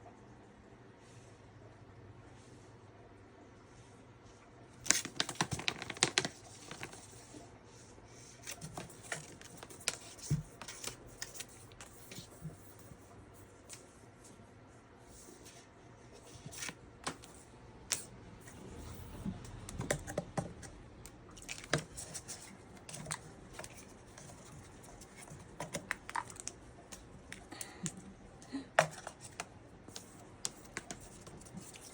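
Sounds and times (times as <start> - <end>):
scratching and clicks on packaging: 4.8 - 7.3, 8.4 - 12.9, 16.2 - 28.1, 28.7 - 31.9.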